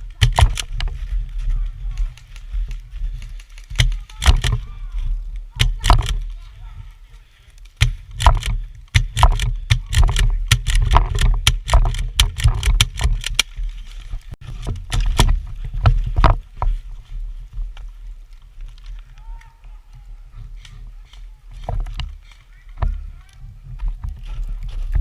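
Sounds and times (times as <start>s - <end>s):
sharp irregular cracks: 0.0s - 6.5s, 7.2s - 16.4s
wind buffeting microphone: 20.0s - 25.0s.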